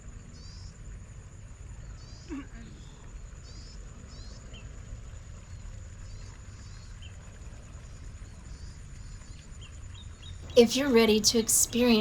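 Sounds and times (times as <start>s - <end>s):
faint bird chirps: 1.8s - 4.8s.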